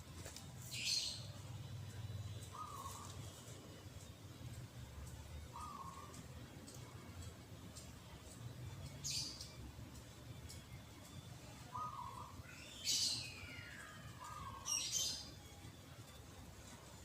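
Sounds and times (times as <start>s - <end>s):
birds chirping: 0.1s - 17.0s
bird low warbling: 2.4s - 3.2s, 5.5s - 6.2s, 11.7s - 15.2s.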